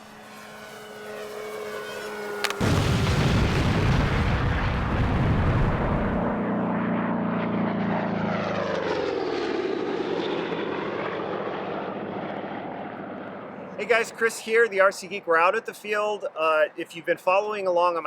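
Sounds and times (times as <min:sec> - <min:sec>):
model plane motor whirring: 0:00.0 - 0:02.6.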